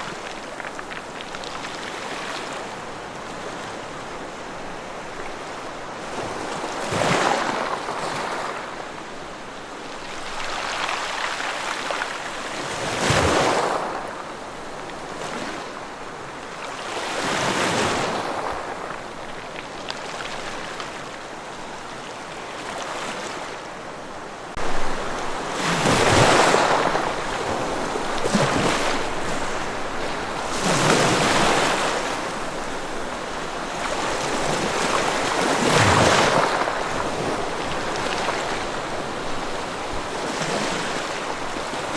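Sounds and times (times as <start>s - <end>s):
ocean waves breaking: 21.6s - 41.9s.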